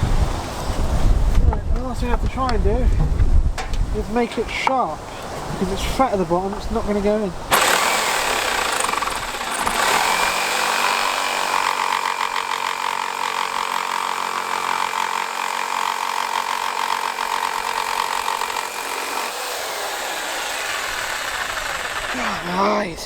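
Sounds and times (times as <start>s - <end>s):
power tool running under load: 7.5s - 22.7s.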